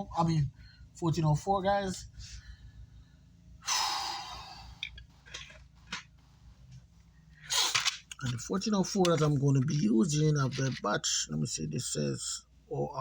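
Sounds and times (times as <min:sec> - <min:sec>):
low steady hum: 0:00.0 - 0:13.0
man breathing: 0:00.5 - 0:01.0, 0:02.1 - 0:05.0.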